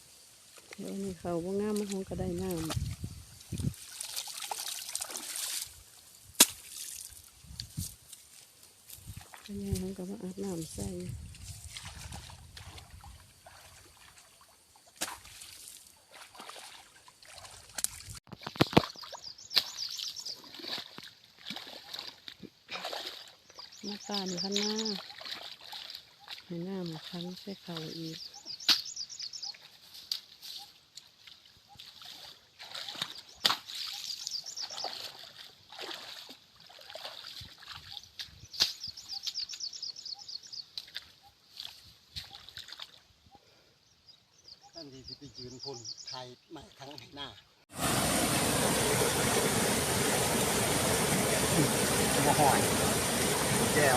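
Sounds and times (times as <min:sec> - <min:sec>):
water sloshing and trickling: 0:00.5 - 0:28.7, 0:29.4 - 0:43.3, 0:46.5 - 0:53.9
small splashes: 0:01.6 - 0:07.4, 0:08.9 - 0:10.0, 0:11.3 - 0:28.1, 0:29.6 - 0:39.7, 0:40.7 - 0:43.1.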